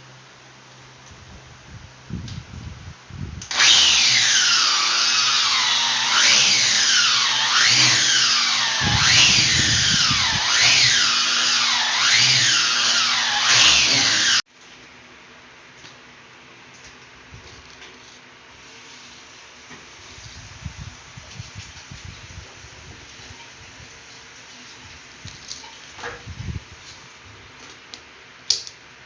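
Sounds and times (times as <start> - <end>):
power tool cutting marble: 3.5 - 14.4.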